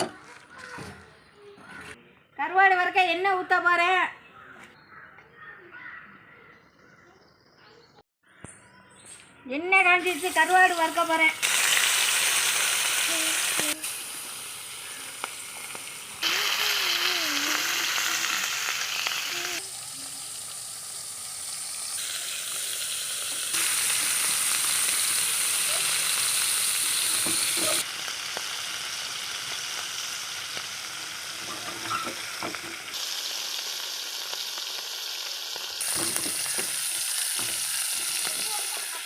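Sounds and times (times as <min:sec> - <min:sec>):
fish sizzling in hot oil: 0:10.0 - 0:39.0.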